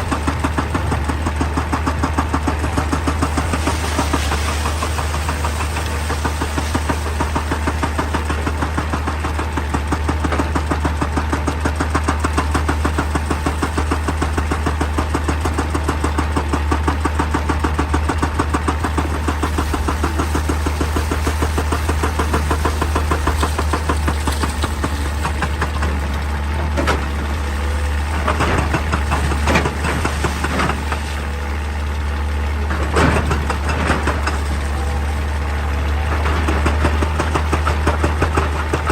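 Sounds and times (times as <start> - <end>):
excavator diesel engine running: 0.0 - 38.9
sharp knocks of rock or bucket: 18.6 - 25.9.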